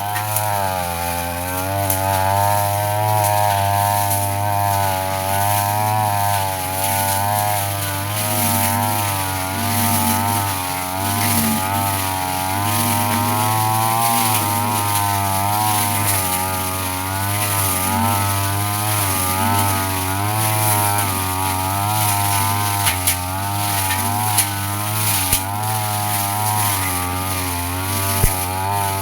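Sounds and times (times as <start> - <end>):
brush cutter cutting grass: 0.0 - 29.0.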